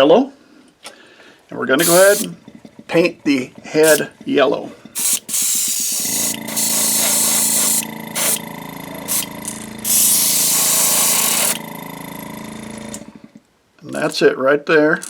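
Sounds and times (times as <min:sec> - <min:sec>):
low machine hum: 0:01.7 - 0:13.4
airbrush spraying hiss: 0:01.8 - 0:02.3, 0:03.8 - 0:04.1, 0:05.0 - 0:08.4, 0:09.0 - 0:11.6.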